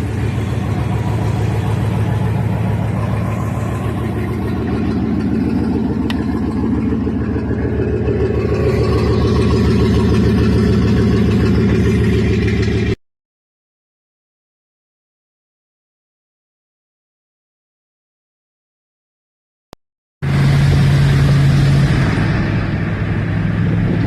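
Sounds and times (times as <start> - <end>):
engine idling: 0.0 - 13.0, 20.2 - 24.0.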